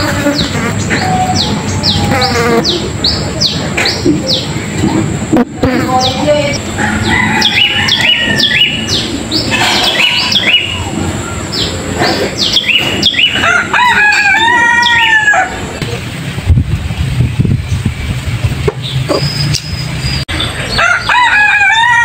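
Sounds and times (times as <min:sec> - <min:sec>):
small birds chirping: 0:00.0 - 0:05.0, 0:05.7 - 0:13.6, 0:17.2 - 0:21.1
rooster crowing: 0:06.6 - 0:11.6, 0:13.2 - 0:15.8, 0:20.7 - 0:22.0.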